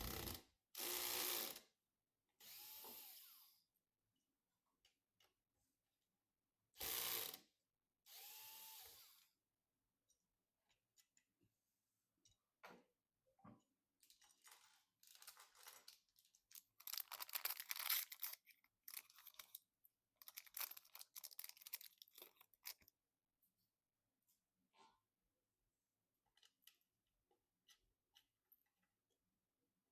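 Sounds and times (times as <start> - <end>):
plastic packaging crinkling: 14.1 - 22.9.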